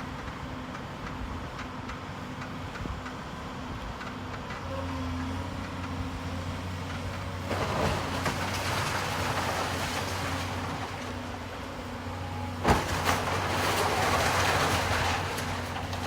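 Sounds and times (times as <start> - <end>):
excavator diesel engine: 0.0 - 16.0
rubble crunching and crackling: 7.2 - 16.0.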